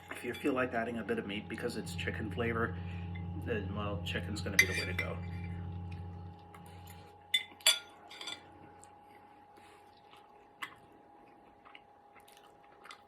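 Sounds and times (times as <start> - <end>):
utensil clinking against dish: 7.3 - 8.5.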